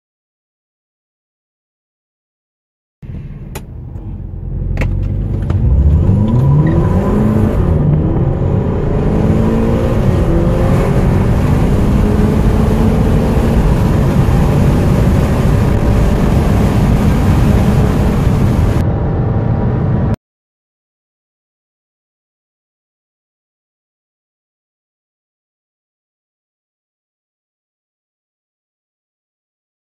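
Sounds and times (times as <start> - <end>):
car engine accelerating: 3.0 - 20.2.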